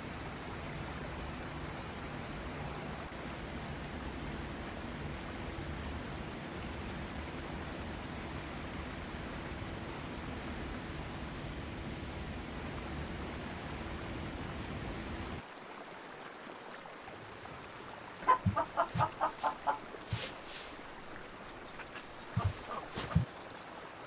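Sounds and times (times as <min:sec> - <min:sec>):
steady rushing noise: 0:17.2 - 0:23.3
chicken clucking: 0:18.2 - 0:23.2.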